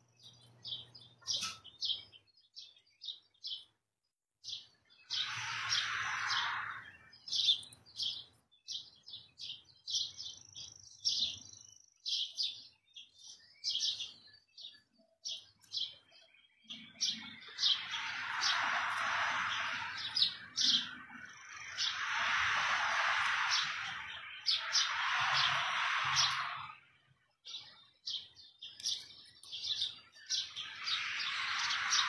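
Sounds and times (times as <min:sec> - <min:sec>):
small birds chirping: 0:00.0 - 0:32.0
high whistled bird note: 0:05.1 - 0:07.6.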